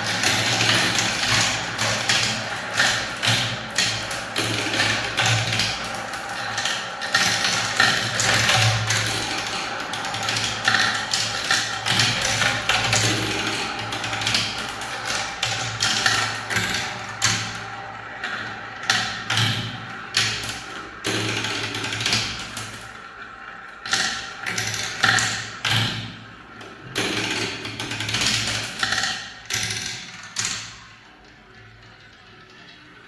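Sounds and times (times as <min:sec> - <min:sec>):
marbles rolling down a track: 0:00.0 - 0:23.0.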